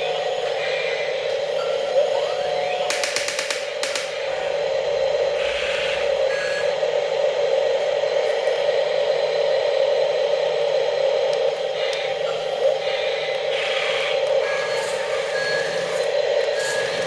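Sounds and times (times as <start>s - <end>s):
small electric motors whirring: 13.2s - 17.0s.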